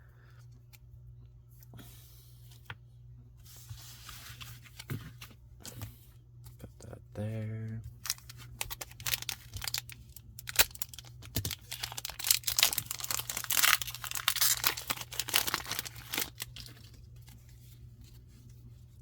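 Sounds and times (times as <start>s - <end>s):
foil wrapper tearing and crinkling: 8.0s - 17.0s.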